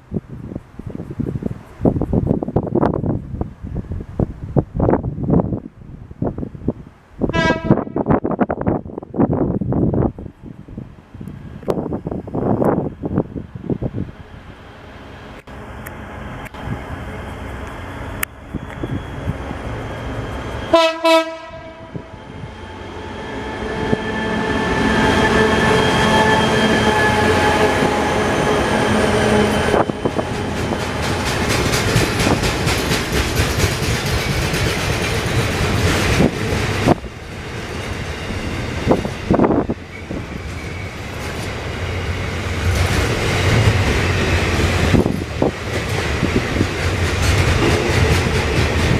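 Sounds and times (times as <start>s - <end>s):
train passing close by: 0.0s - 48.9s
train horn blast: 7.3s - 8.2s, 20.6s - 29.9s.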